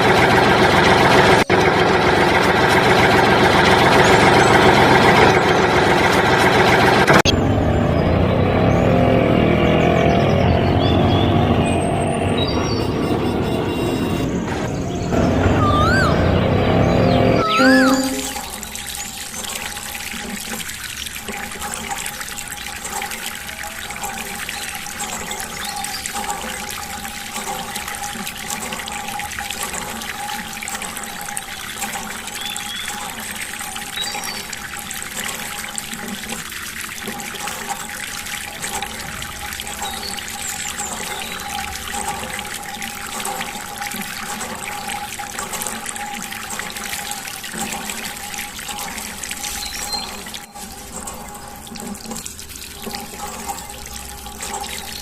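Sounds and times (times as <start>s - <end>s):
water trickling: 17.4s - 55.0s.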